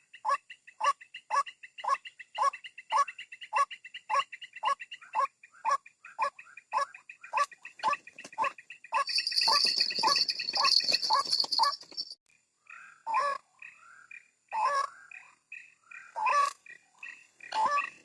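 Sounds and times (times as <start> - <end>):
waterhen harsh croaking calls: 14.5 - 18.0.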